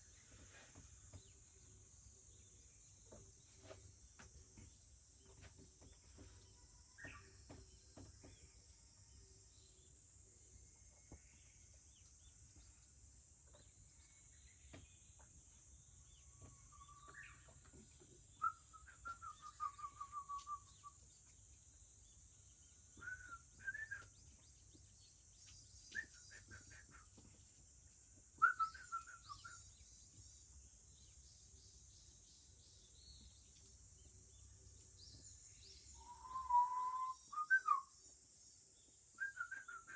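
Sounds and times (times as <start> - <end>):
insects droning: 1.2 - 39.9
bird singing whistled phrases: 18.4 - 21.0, 23.0 - 24.2, 25.8 - 27.0, 28.4 - 29.8, 35.8 - 38.0, 39.2 - 39.9.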